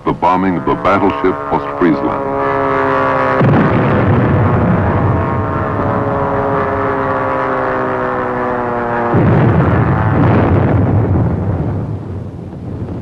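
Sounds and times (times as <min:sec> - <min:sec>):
falling pitched drone: 0:00.0 - 0:12.5
bomb explosion: 0:03.1 - 0:13.0.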